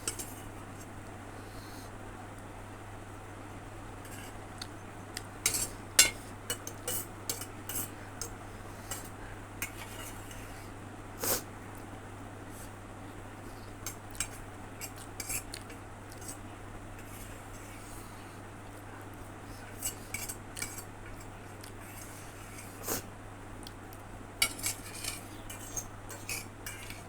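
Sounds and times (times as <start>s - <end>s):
cutlery clinking against bowl: 0.0s - 0.5s, 4.0s - 10.5s, 19.8s - 21.3s, 24.4s - 27.0s.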